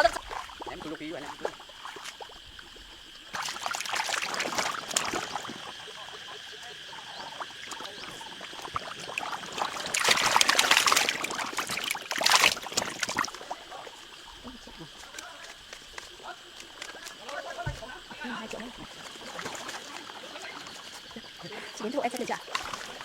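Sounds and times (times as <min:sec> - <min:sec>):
water splashing and pouring: 0:00.0 - 0:05.8, 0:07.3 - 0:15.2, 0:18.2 - 0:21.2, 0:22.3 - 0:23.0.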